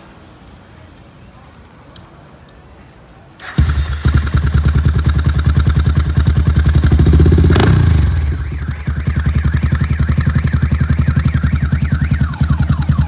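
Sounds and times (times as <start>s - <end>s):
motorcycle engine idling and revving: 3.4s - 13.0s.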